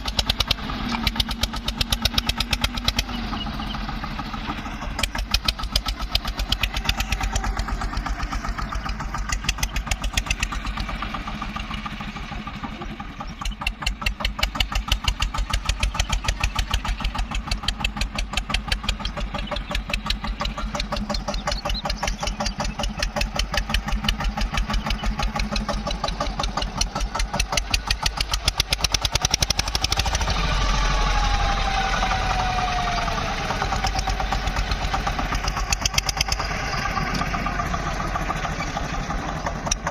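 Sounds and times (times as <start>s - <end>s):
tractor diesel engine chugging: 0.0s - 39.9s.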